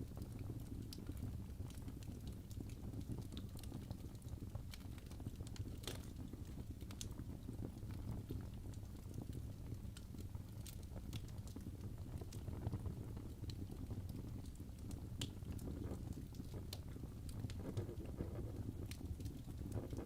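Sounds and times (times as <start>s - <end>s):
fire flames rumbling: 0.0s - 20.0s
logs crackling and popping: 0.0s - 20.0s.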